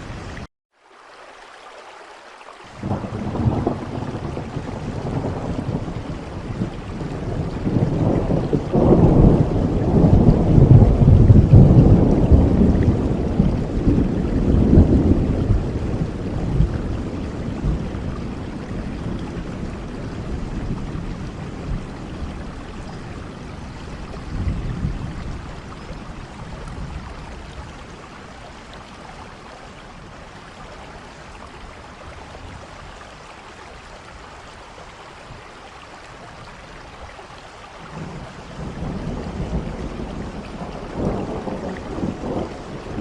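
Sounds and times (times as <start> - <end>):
steady rain falling: 0.0 - 43.0
low thunder rumbles: 2.7 - 30.3, 37.8 - 43.0.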